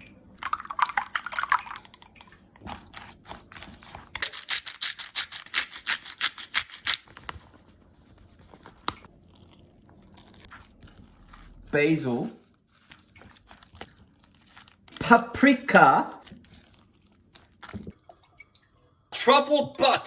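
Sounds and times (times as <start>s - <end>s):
utensil scraping rhythmically: 3.2s - 7.3s.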